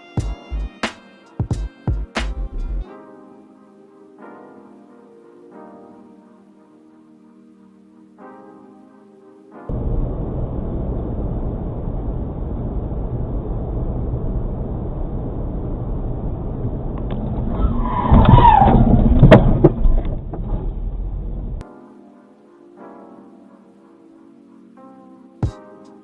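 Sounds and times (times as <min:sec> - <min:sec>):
road and engine noise: 0:09.7 - 0:21.6.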